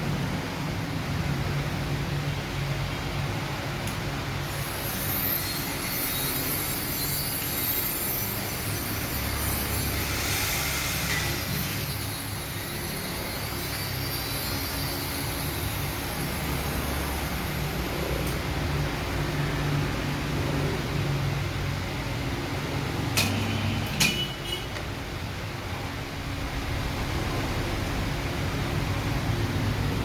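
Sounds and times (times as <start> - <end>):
fabric cutting machine whine: 4.3 - 21.1
hiss: 4.4 - 17.8.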